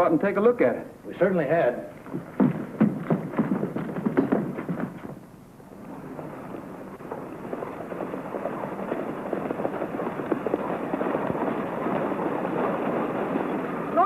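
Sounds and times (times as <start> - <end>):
horses galloping hoofbeats: 1.3 - 14.0.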